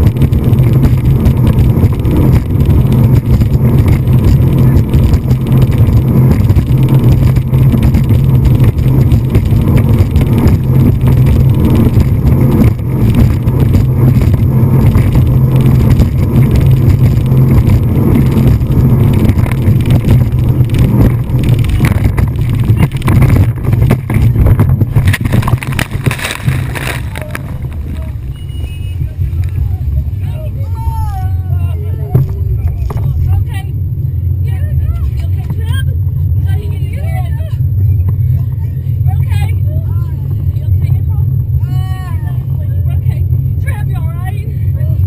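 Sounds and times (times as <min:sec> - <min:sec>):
rushing water noise: 0:00.0 - 0:28.4
speedboat engine drone: 0:00.0 - 0:45.0.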